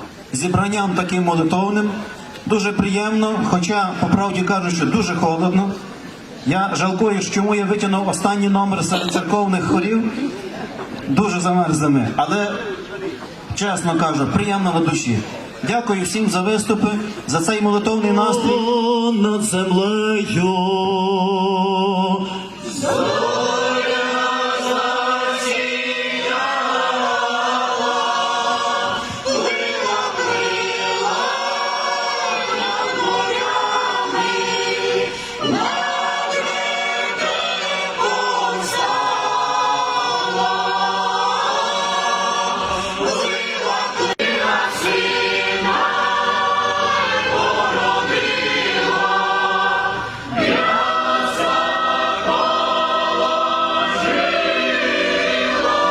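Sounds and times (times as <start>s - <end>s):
choir singing unaccompanied: 15.8s - 55.9s.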